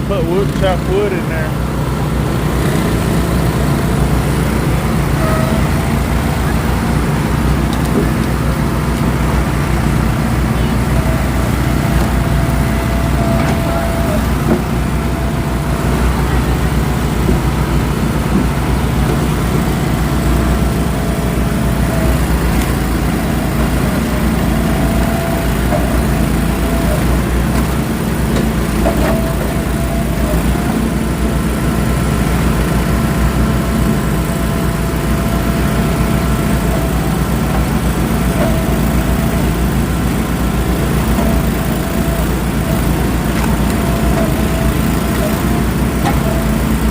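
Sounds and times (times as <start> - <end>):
firewood processor engine running: 0.0 - 46.9.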